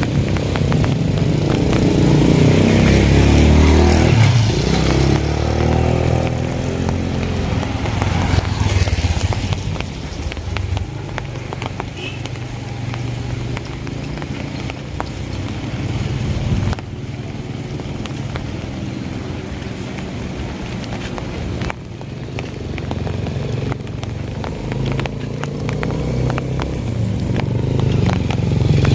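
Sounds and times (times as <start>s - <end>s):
light rain ticking: 0.0s - 28.9s
motorcycle engine passing: 0.0s - 28.9s.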